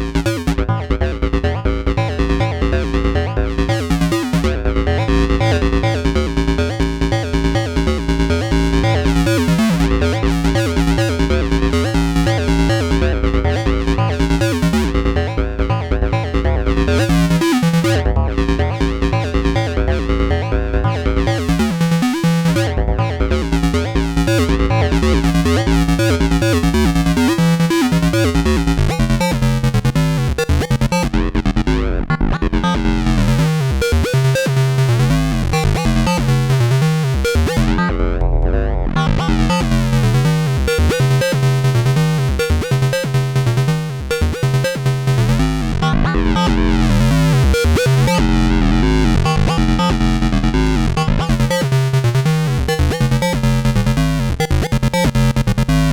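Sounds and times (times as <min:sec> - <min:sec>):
sequenced synth bass line: 0:00.0 - 0:55.9
layered synth tones: 0:43.8 - 0:53.4.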